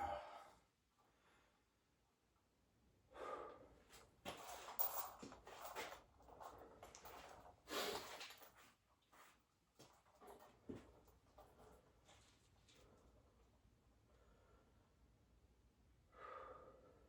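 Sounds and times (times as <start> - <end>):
man breathing hard: 0.0 - 0.6, 3.1 - 3.7, 16.1 - 17.0.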